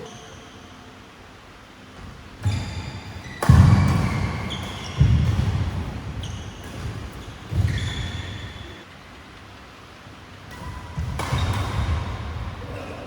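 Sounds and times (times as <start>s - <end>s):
court shoes squeaking: 0.0s - 0.9s, 2.0s - 8.9s, 10.4s - 13.0s.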